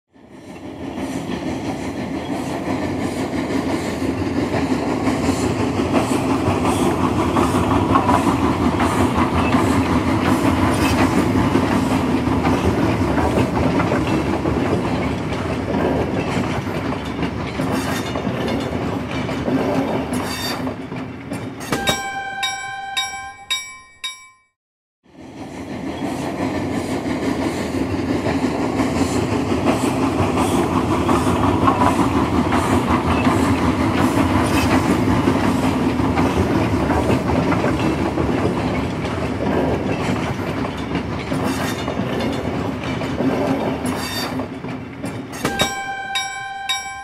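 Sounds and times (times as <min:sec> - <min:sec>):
train wheels rumbling on rails: 0:00.1 - 0:24.2, 0:25.1 - 0:47.0.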